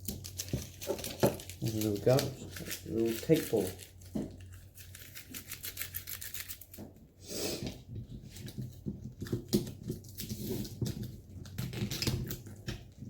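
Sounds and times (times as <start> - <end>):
packing tape crackling: 0.0 - 6.8.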